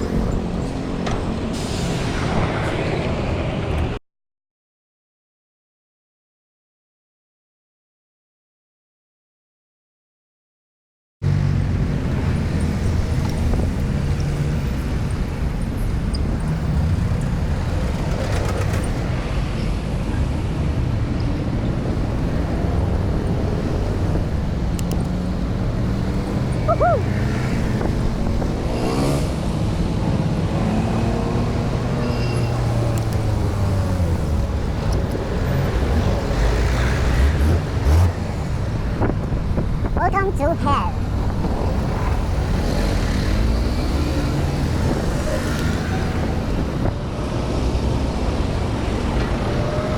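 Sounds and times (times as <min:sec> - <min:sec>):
traffic passing: 0:11.2 - 0:49.9
vehicle engine revving: 0:21.7 - 0:39.6, 0:41.1 - 0:49.9.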